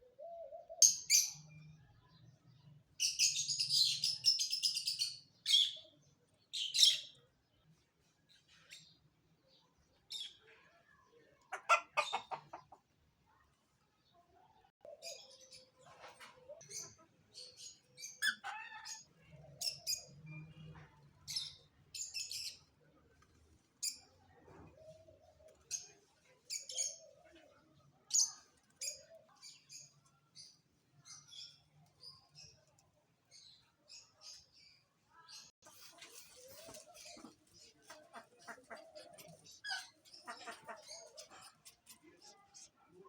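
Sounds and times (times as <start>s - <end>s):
small birds chirping: 0.1s - 43.0s.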